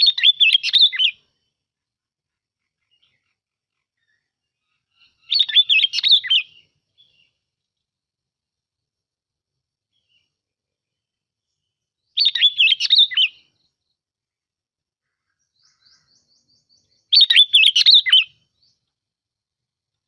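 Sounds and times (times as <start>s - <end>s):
bulbul warbling song: 15.6s - 18.8s.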